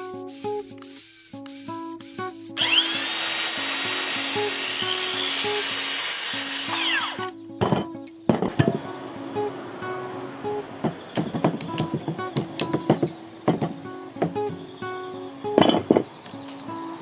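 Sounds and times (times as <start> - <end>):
power tool motor: 2.6 - 7.3
sharp knocks on wood: 10.8 - 14.6.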